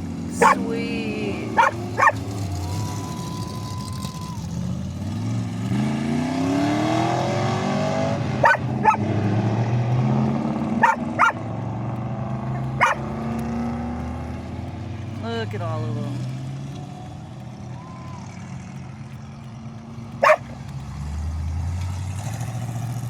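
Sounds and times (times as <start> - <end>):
old car engines passing: 0.0 - 23.0
dog barking: 0.4 - 0.6, 1.5 - 2.4, 8.4 - 9.0, 10.8 - 11.4, 12.6 - 13.2, 20.2 - 20.6.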